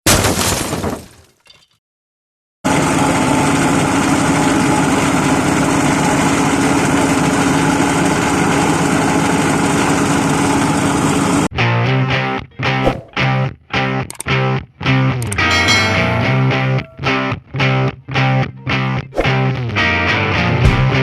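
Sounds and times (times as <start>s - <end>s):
shredding machine running: 2.7s - 11.5s.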